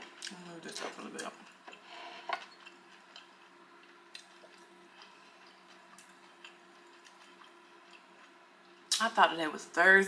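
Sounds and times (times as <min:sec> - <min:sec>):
person chewing food: 0:01.3 - 0:09.0.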